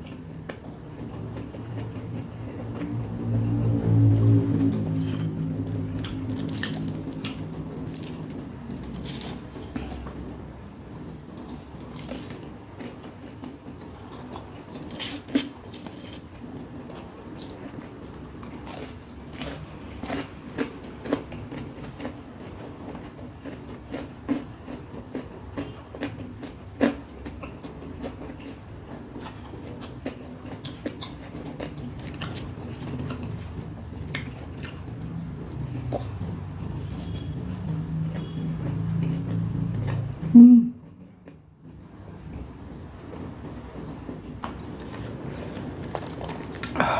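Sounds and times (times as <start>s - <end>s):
chewing crispy snacks: 0.1s - 40.1s, 43.1s - 46.9s
low hum: 2.2s - 11.4s.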